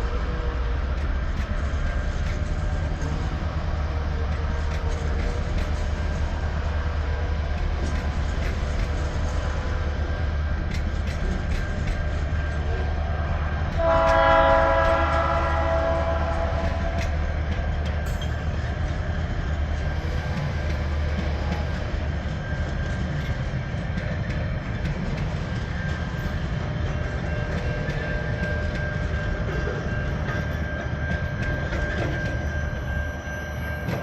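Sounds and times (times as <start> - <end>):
diesel locomotive engine drone: 0.0 - 34.0
locomotive horn: 13.7 - 17.0.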